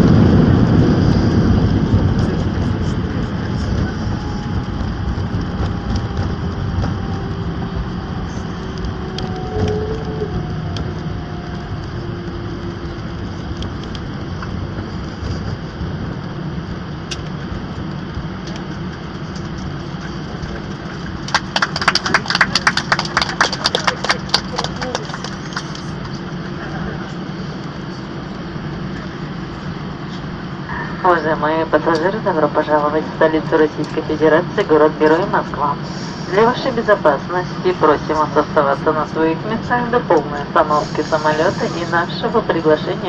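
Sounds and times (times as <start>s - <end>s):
aircraft wheels rolling: 0.0s - 43.0s
jet engines rumbling: 0.0s - 43.0s.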